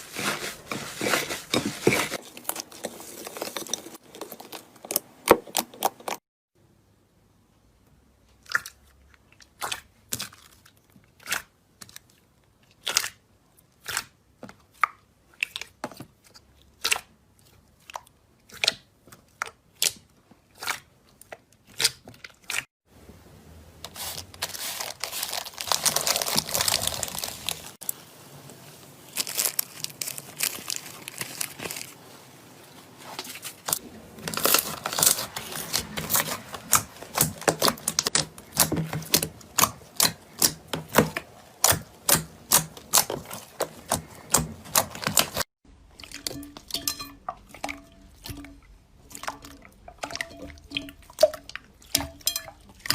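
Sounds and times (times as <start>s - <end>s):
slime crunchy crackling: 0.0s - 6.2s, 23.9s - 28.0s, 28.9s - 45.5s.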